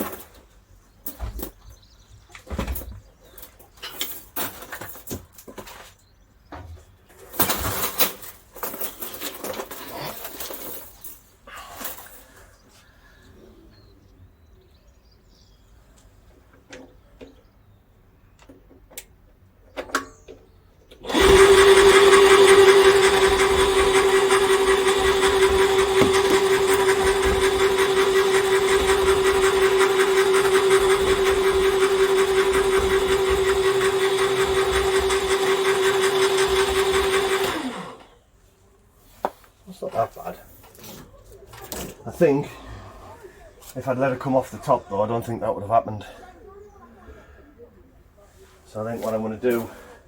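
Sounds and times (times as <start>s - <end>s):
machine motor humming: 21.0s - 38.1s.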